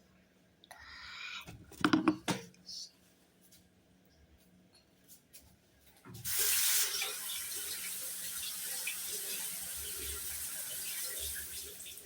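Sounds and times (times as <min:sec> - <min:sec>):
water tap running into sink: 0:06.2 - 0:12.0.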